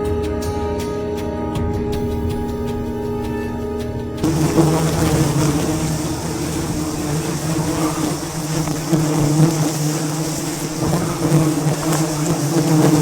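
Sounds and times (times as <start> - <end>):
bees buzzing: 2.8 - 13.0.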